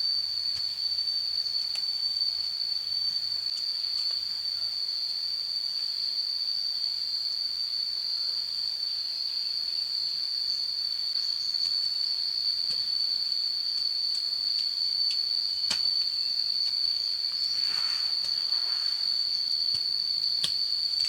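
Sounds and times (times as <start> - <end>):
insects droning: 0.0 - 21.0
faint ticks: 13.7 - 16.8, 19.7 - 21.0.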